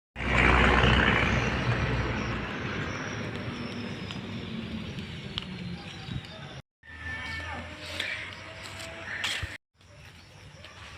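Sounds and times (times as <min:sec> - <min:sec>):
motor vehicle passing: 0:00.2 - 0:06.0.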